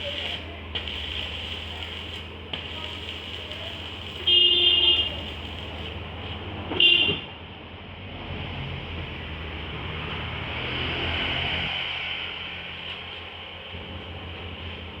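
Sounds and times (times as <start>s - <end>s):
vehicle horn toots: 4.2s - 5.2s, 6.8s - 7.3s.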